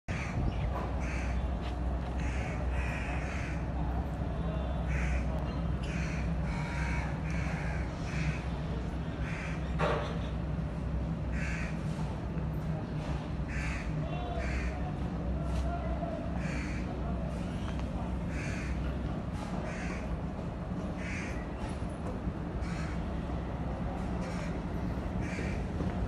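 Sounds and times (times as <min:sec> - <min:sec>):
birds calling: 0:00.1 - 0:03.7
steady low hum: 0:00.1 - 0:26.0.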